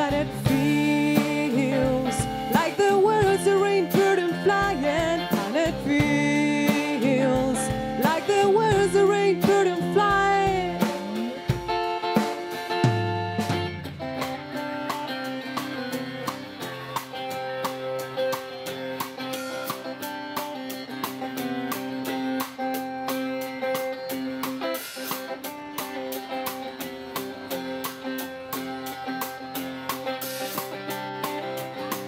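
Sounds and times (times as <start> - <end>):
instrumental music with held chords: 0.0 - 32.0.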